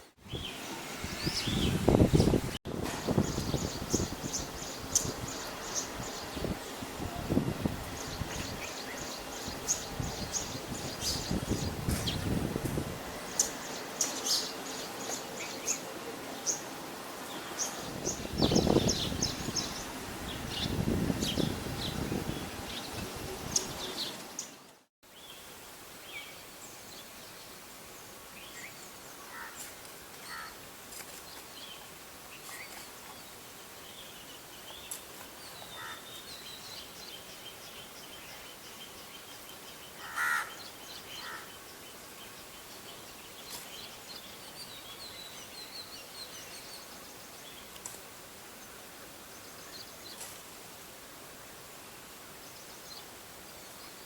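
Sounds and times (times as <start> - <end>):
small birds chirping: 0.3 - 12.4, 13.2 - 50.5
crows cawing: 29.2 - 29.6, 30.2 - 30.6, 35.8 - 36.1, 40.0 - 40.6, 41.2 - 41.5.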